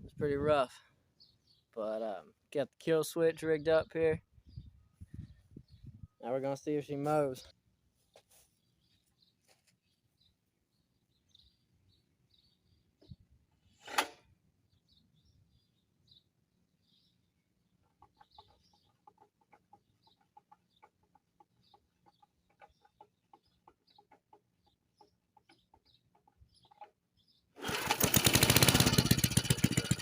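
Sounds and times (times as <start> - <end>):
faint bird chirps: 4.4 - 6.3
lawn mower engine running: 27.6 - 30.0.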